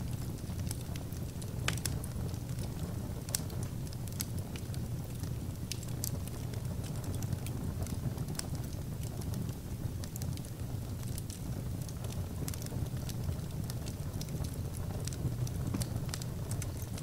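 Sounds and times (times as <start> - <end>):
fire crackles and pops: 0.0 - 17.0
wood fire burning: 0.0 - 17.0.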